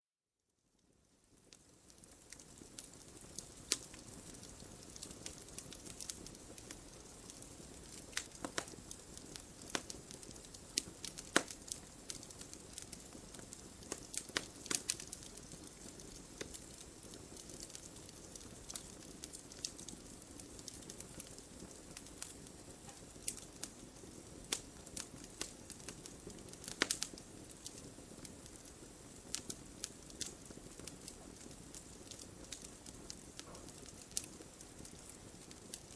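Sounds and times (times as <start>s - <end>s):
hiss of flames: 1.4s - 35.9s
logs crackling and popping: 1.4s - 35.9s.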